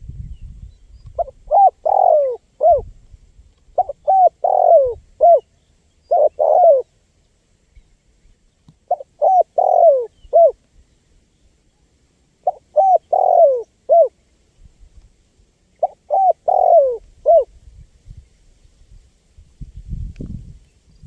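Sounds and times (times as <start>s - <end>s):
dove cooing: 1.2s - 2.9s, 3.7s - 6.9s, 8.9s - 10.6s, 12.4s - 14.2s, 15.8s - 17.5s.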